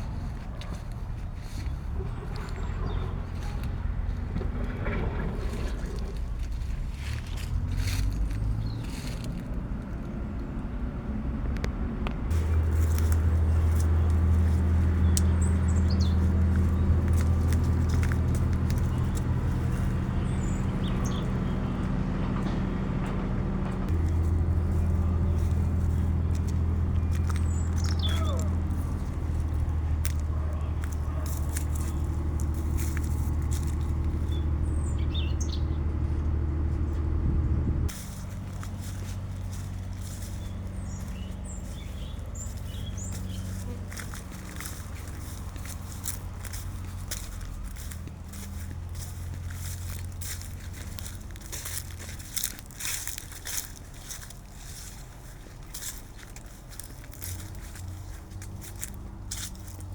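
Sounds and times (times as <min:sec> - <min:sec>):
bird chirping: 0:12.4 - 0:22.6, 0:24.1 - 0:58.2.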